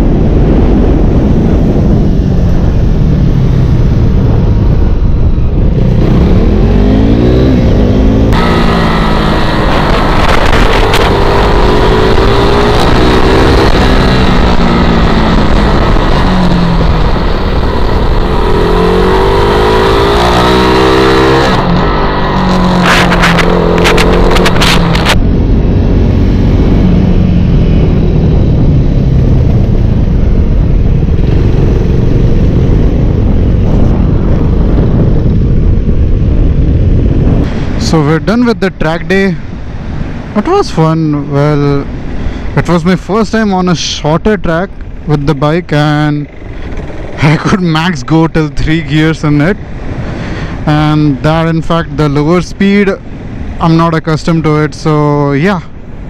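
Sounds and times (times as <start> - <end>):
wind noise: 0.0 - 56.0
motorcycle engine revving: 0.2 - 37.8, 44.8 - 47.6.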